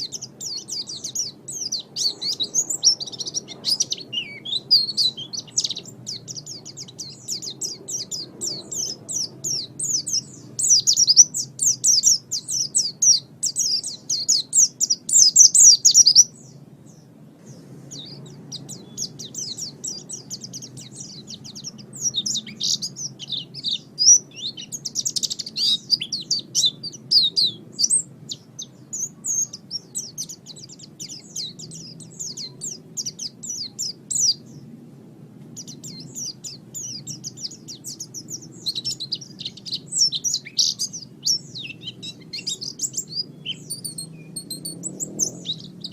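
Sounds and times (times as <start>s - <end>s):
bird singing high twittering song: 0.0s - 45.9s.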